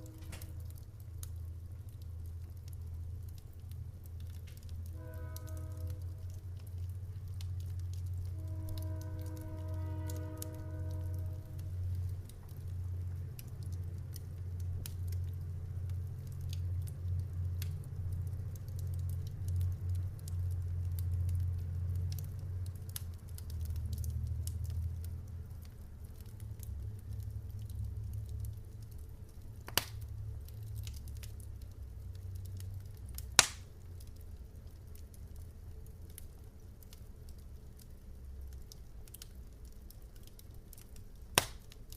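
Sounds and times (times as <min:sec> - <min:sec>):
sharp loud pops from fire: 0:00.0 - 0:00.7, 0:29.7 - 0:30.0, 0:33.2 - 0:33.7, 0:41.3 - 0:41.8
wood fire crackling: 0:00.0 - 0:41.9.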